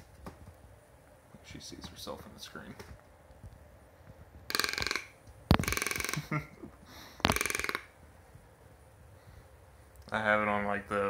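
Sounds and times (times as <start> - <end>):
toucan rattling calls: 4.5 - 6.4, 7.2 - 8.0.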